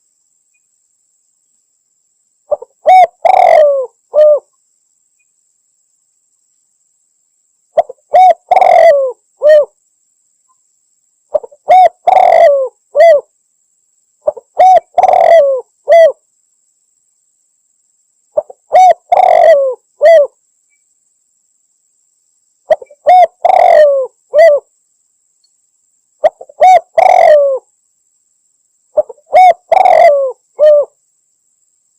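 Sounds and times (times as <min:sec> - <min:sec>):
dove cooing: 0:02.5 - 0:04.5, 0:07.8 - 0:09.8, 0:11.3 - 0:13.3, 0:14.2 - 0:16.2, 0:18.4 - 0:20.4, 0:22.7 - 0:24.7, 0:26.2 - 0:27.7, 0:29.0 - 0:31.0.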